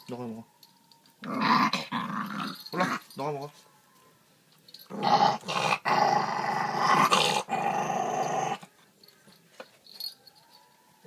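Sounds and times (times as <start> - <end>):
dog growling: 1.2 - 3.0, 4.9 - 8.7.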